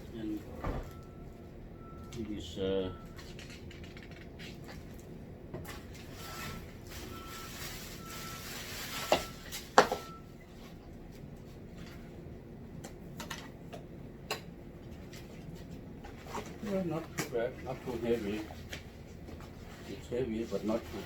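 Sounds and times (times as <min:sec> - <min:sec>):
vacuum cleaner packaging rustling: 0:05.7 - 0:09.7.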